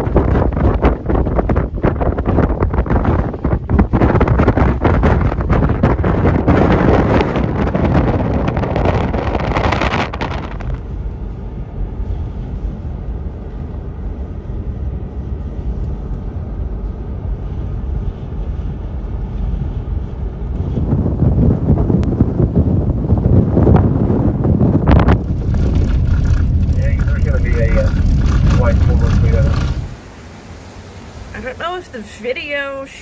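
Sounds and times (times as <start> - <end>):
blizzard wind buffeting microphone: 0.0 - 33.0.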